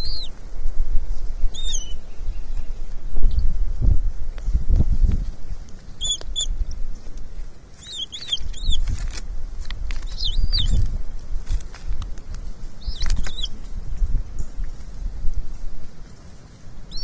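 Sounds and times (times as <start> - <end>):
eagles chirping: 0.0 - 0.4, 1.5 - 2.2, 5.9 - 6.7, 7.8 - 8.8, 10.0 - 10.8, 12.8 - 13.6
wind rumble on microphone: 0.0 - 17.0.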